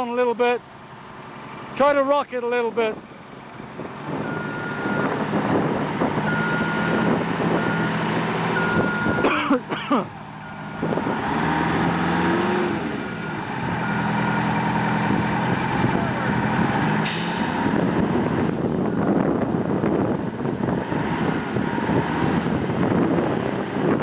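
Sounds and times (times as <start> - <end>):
diesel engine revving under load: 0.2 - 24.0
reversing alarm beeping: 4.2 - 5.1, 6.3 - 9.3.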